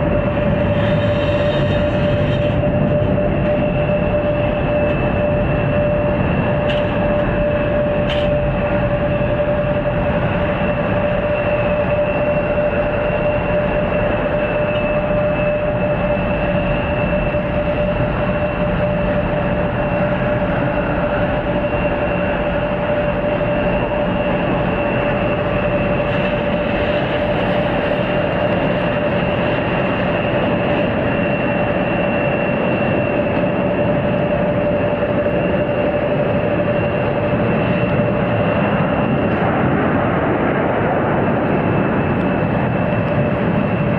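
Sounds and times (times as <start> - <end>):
jet engines running: 0.0 - 43.9.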